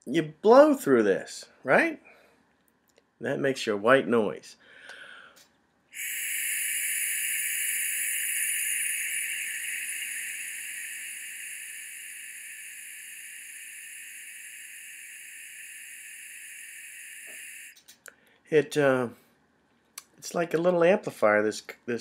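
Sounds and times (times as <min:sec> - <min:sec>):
breath hissing through soap pump: 0:06.0 - 0:17.8.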